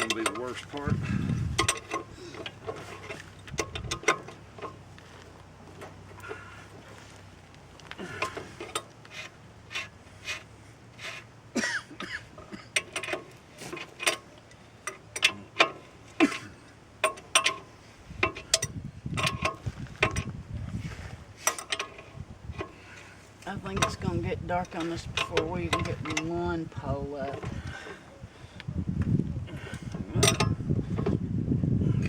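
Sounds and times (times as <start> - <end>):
metal tools clinking: 0.0 - 7.0, 8.0 - 20.3, 21.4 - 28.0, 29.6 - 31.2
heavy low knocking and rumble: 0.0 - 8.0.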